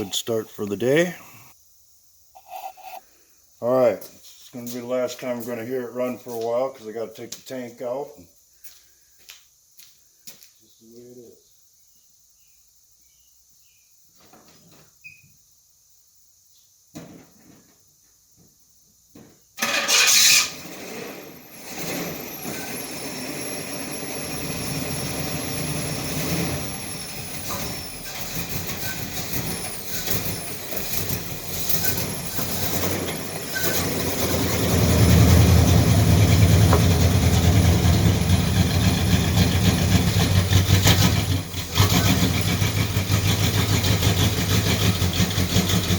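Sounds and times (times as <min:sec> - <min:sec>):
car engine starting and idling: 0:19.6 - 0:45.9.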